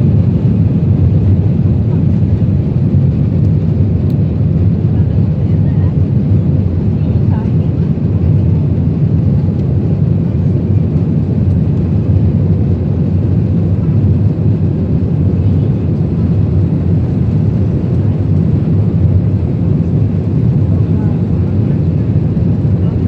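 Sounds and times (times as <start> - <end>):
jet engines rumbling in cabin: 0.0 - 23.0.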